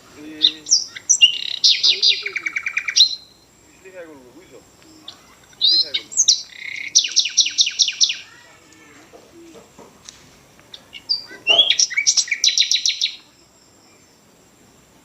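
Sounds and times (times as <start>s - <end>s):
songbird singing high notes: 0.2s - 8.4s, 10.7s - 14.2s.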